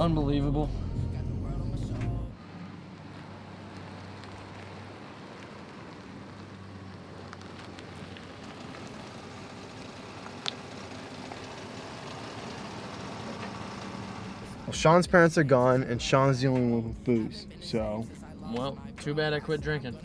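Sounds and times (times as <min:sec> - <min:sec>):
car cabin road noise: 0:00.0 - 0:20.0.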